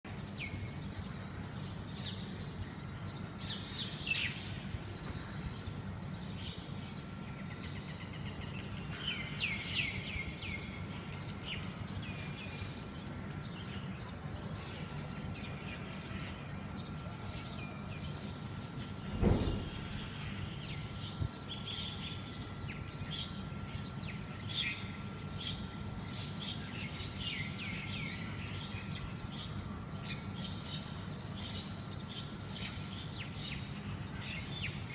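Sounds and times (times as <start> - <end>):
birds chirping: 0.1 - 34.9
low thump: 19.1 - 20.0.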